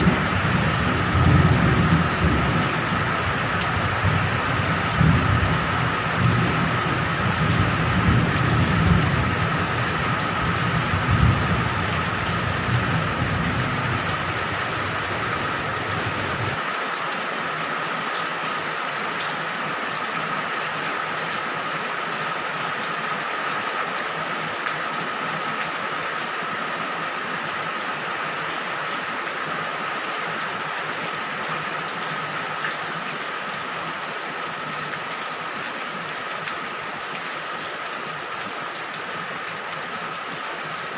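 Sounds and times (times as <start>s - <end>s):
thunder rumbling: 0.0s - 16.6s
heavy rainfall: 0.0s - 40.9s.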